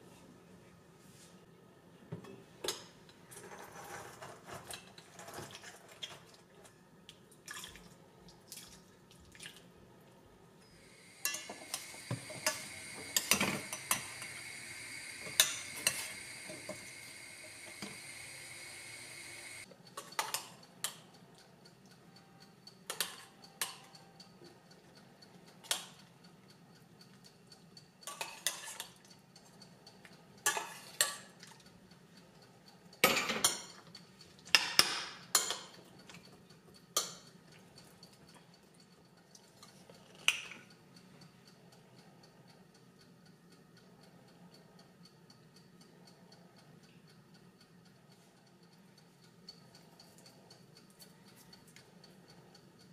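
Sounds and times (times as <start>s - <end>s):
steady hiss: 10.7s - 19.6s.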